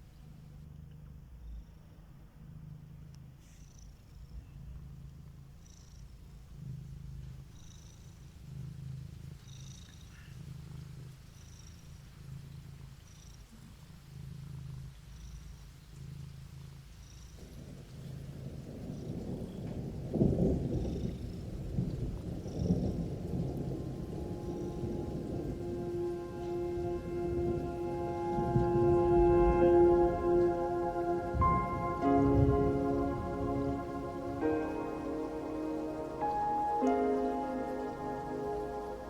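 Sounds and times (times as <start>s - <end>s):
cat purring: 0.0s - 39.0s
low rumble: 21.7s - 39.0s.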